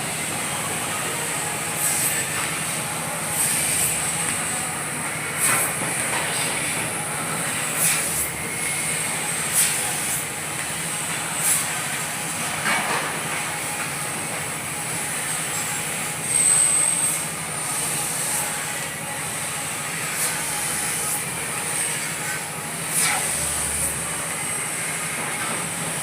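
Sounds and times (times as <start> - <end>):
cutting machine hissing: 0.0 - 26.0
sharp hiss bursts: 7.5 - 8.2.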